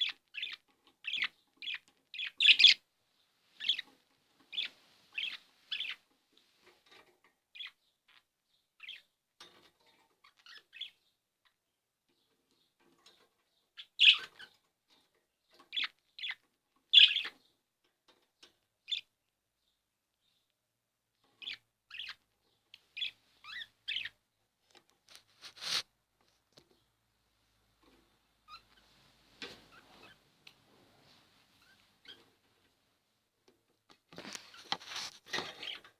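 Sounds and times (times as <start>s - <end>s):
budgerigar chirping: 0.0s - 2.8s, 3.6s - 3.9s, 4.5s - 6.0s, 7.6s - 8.2s, 8.8s - 9.1s, 10.3s - 11.0s, 13.8s - 14.5s, 15.7s - 17.4s, 18.9s - 19.1s, 21.4s - 22.2s, 23.0s - 24.2s.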